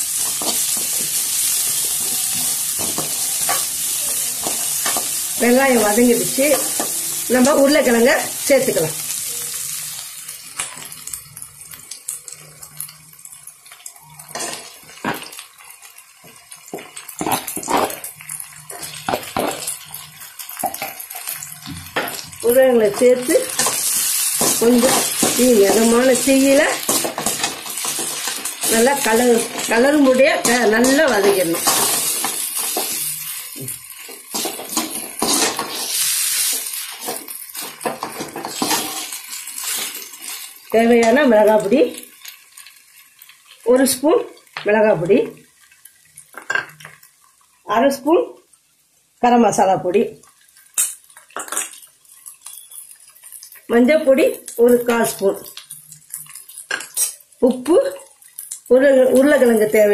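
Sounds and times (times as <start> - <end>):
oil sizzling: 0.0 - 59.9
metal spoon stirring and scraping: 0.1 - 8.3, 14.2 - 15.4, 18.7 - 41.1, 50.5 - 53.7, 54.9 - 57.2.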